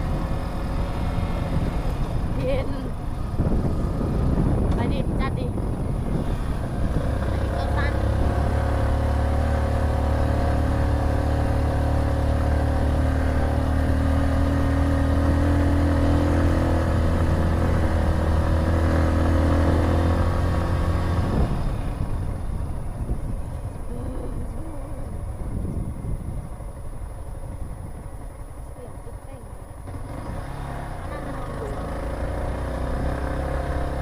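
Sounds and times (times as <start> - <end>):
motorcycle engine running hard: 0.0 - 34.0.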